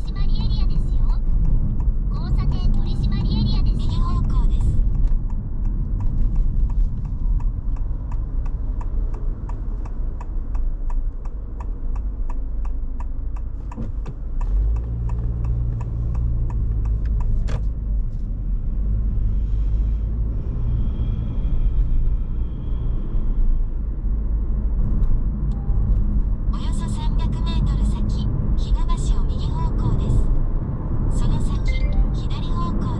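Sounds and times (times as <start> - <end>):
turn signal ticking: 0.0 - 19.0
road and engine rumble: 0.0 - 32.9.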